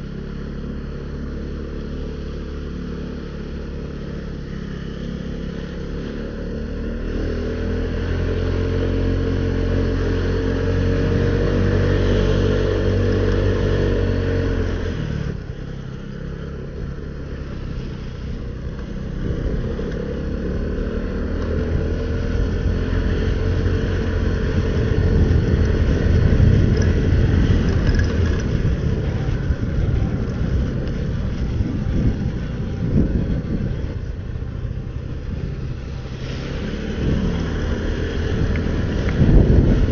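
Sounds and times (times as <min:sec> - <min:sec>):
motorcycle engine revving: 0:00.0 - 0:39.9
tyres on wet road: 0:00.0 - 0:39.9
wind noise: 0:16.8 - 0:39.9.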